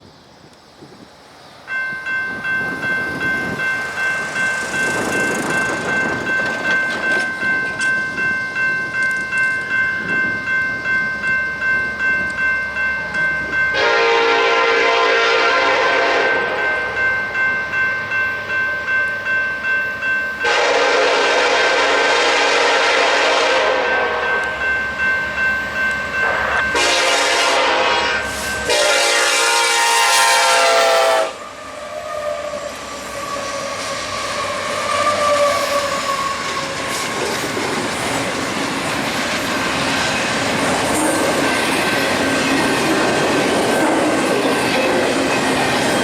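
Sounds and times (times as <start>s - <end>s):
bell ringing: 1.7s - 14.1s, 16.6s - 20.6s, 23.8s - 27.0s
train horn blasts: 13.7s - 17.0s, 20.4s - 24.5s, 26.2s - 36.4s.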